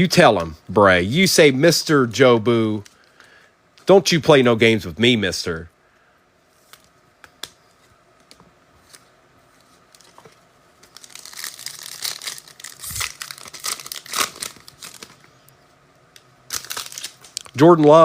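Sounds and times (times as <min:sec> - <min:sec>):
foil wrapper tearing and crinkling: 0:10.8 - 0:15.3, 0:16.5 - 0:17.6.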